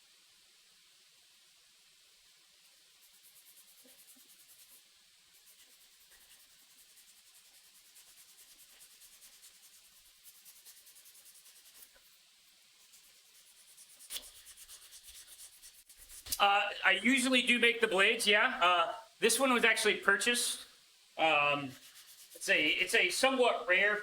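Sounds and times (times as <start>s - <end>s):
hand sanding wood: 3.0s - 4.8s, 5.4s - 12.2s, 12.8s - 16.4s, 21.3s - 24.0s.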